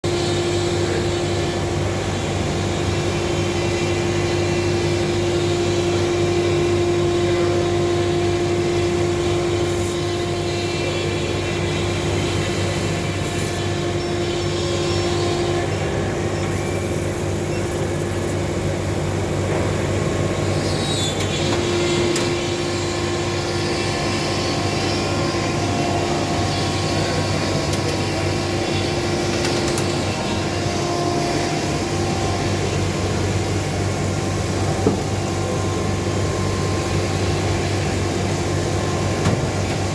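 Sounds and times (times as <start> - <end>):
laser cutting machine hum: 0.0 - 39.9
machine whine: 0.0 - 39.9.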